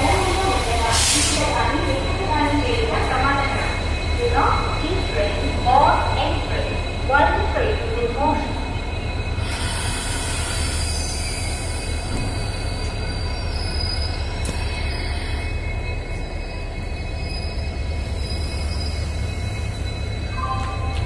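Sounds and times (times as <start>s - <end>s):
train wheels rumbling on rail: 0.0s - 21.0s
faint high wheel squeal: 8.6s - 21.0s.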